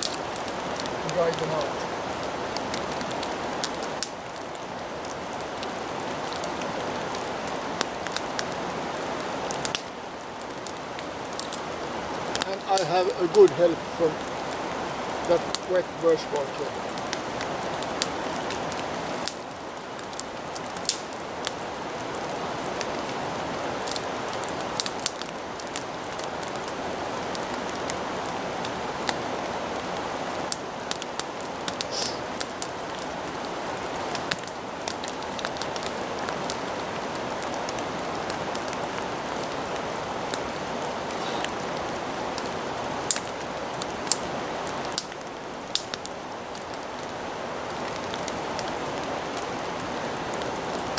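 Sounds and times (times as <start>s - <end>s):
sharp pops and ticks: 0.0s - 4.2s, 20.0s - 21.6s, 43.1s - 44.3s, 44.9s - 46.7s
heavy rain falling: 0.0s - 50.9s.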